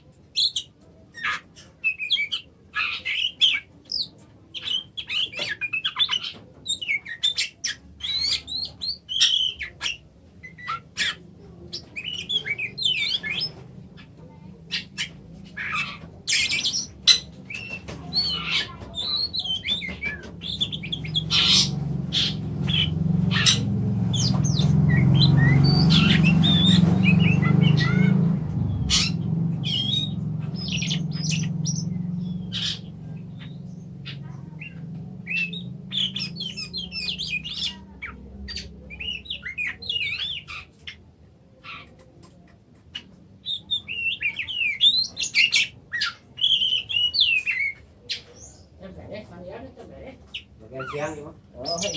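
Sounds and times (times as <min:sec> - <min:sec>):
bird chirping and whistling: 0:01.2 - 0:14.1, 0:14.7 - 0:40.7, 0:43.0 - 0:48.5
low rumble: 0:12.9 - 0:39.5.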